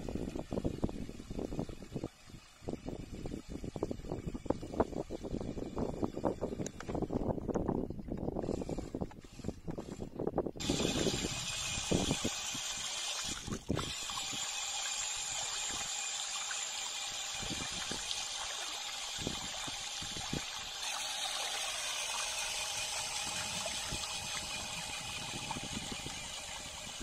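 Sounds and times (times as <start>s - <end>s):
water trickling: 10.9s - 27.0s.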